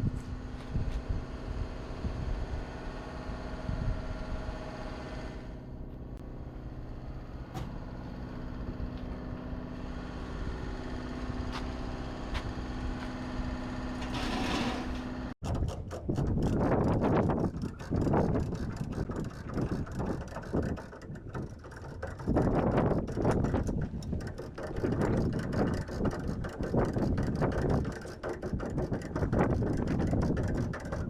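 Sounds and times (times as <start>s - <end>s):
machine humming and rumbling: 0.0s - 31.0s
rapid mechanical clicking: 15.4s - 31.0s.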